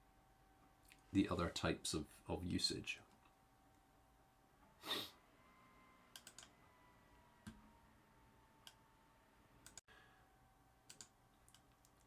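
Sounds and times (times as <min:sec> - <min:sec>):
keyboard clicks: 0:06.2 - 0:06.5, 0:10.9 - 0:12.0.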